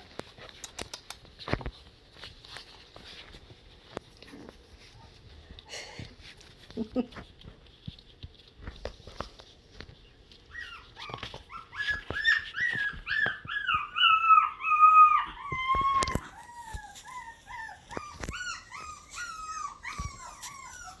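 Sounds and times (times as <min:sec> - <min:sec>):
puppies whining: 0:08.4 - 0:21.0.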